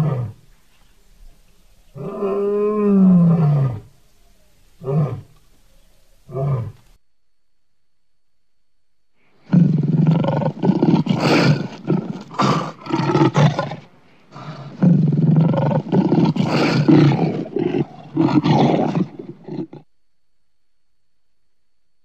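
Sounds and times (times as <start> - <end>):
lion roaring: 1.9 - 3.9, 9.5 - 19.9.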